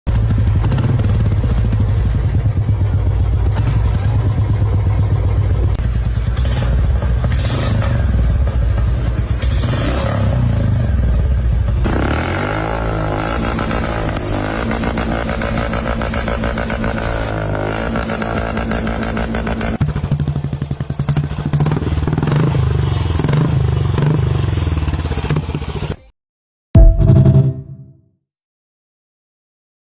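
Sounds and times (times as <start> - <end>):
motorcycle exhaust deep note: 0.1 - 20.0, 26.8 - 28.0
motorcycle exhaust higher note: 26.8 - 28.0.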